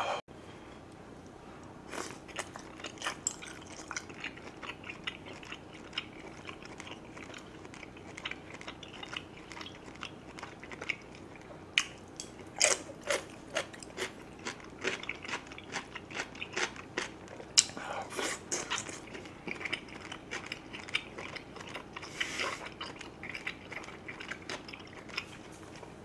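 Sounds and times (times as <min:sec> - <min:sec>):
chewing with wet mouth smacks: 0:01.9 - 0:26.0.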